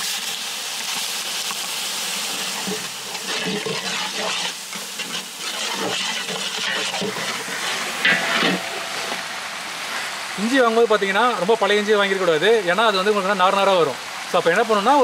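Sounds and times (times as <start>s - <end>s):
paste sizzling in hot oil: 0.0s - 10.5s
ladle scraping in pot: 2.6s - 9.2s.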